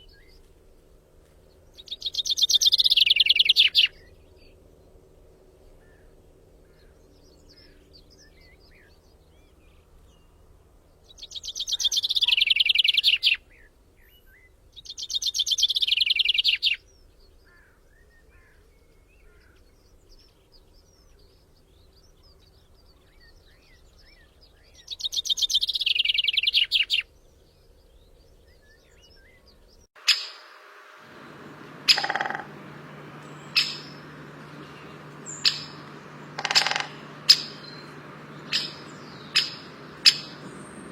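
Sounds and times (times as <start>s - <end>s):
faint background birdsong: 0.0s - 40.9s
songbird trilling: 1.8s - 4.1s, 30.0s - 40.9s
steady low hum: 30.0s - 40.9s
sharp clicks: 33.2s - 40.5s.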